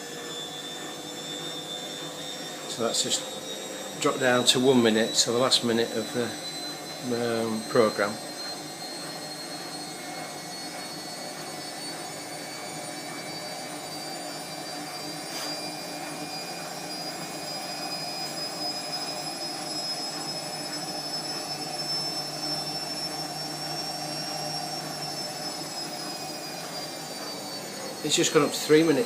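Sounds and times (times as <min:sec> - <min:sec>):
washing machine spin whine: 0:00.0 - 0:29.0.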